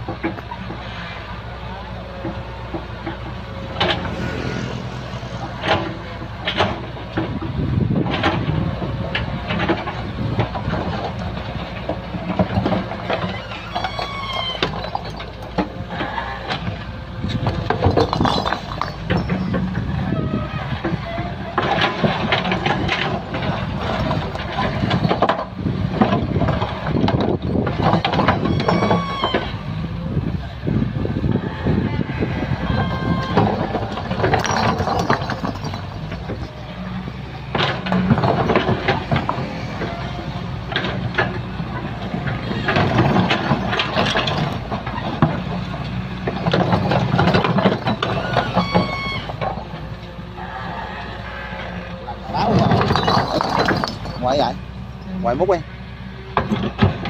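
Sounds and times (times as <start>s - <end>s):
excavator bucket clanking: 0.0s - 0.9s, 2.2s - 4.4s, 5.4s - 29.6s, 32.6s - 50.0s, 52.0s - 55.6s, 56.3s - 57.0s
diesel engine under load: 0.0s - 57.0s
high squeal: 13.3s - 15.2s, 28.4s - 29.6s, 31.4s - 33.8s, 47.8s - 49.4s.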